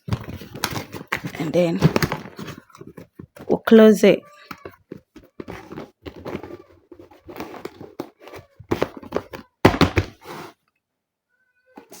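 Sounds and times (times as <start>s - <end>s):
cardboard rustling: 0.0s - 3.8s, 4.4s - 10.6s
knocks on cardboard: 9.6s - 10.2s.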